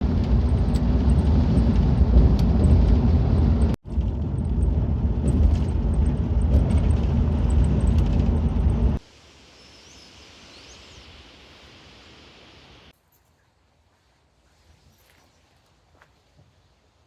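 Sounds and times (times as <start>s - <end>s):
loud low rumbling: 0.0s - 9.0s.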